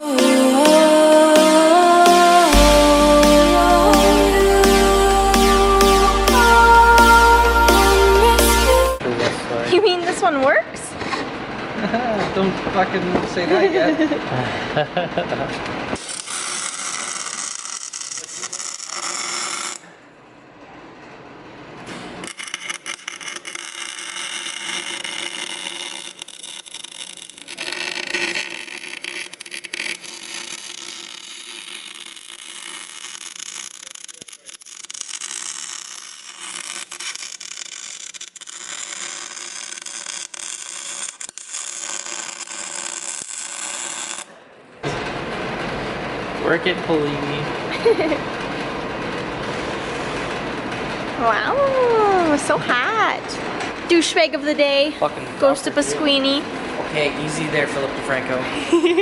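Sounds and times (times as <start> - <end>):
arc welder crackling hiss: 16.0 - 19.9, 21.9 - 44.4.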